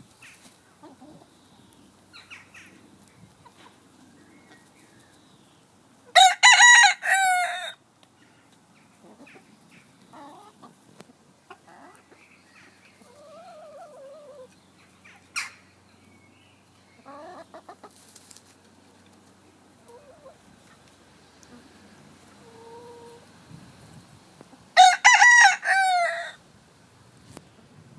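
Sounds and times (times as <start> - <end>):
chickens clucking: 0.0 - 26.2
rooster crowing: 6.2 - 7.8, 24.8 - 26.4.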